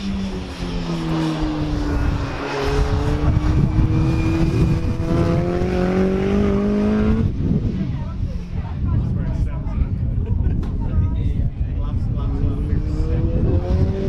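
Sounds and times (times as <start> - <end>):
stock car engine revving: 0.0 - 7.4.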